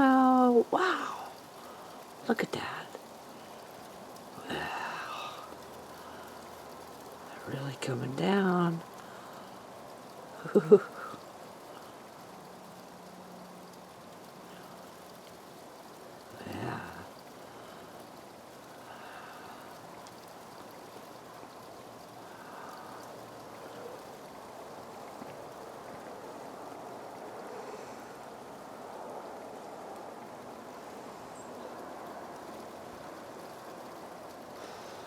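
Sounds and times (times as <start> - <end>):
heavy wet snowfall hiss: 0.0 - 35.0
faint ticks of drips landing: 8.8 - 26.5.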